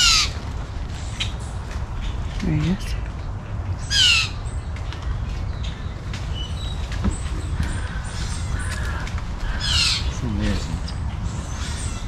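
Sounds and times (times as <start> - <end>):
birds chirping and calling: 0.0 - 12.0
steady low rumble: 0.0 - 12.0.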